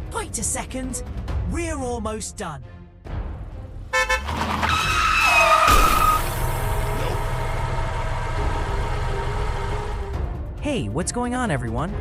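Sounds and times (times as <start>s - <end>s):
horn honk: 3.9s - 6.4s
tyre screech: 4.4s - 7.1s
vehicle engine running: 6.3s - 10.4s.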